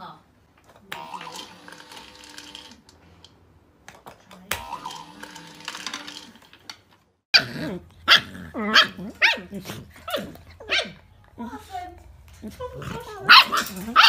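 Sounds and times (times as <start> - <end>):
dogs barking and growling: 7.3 - 11.2, 12.2 - 14.0.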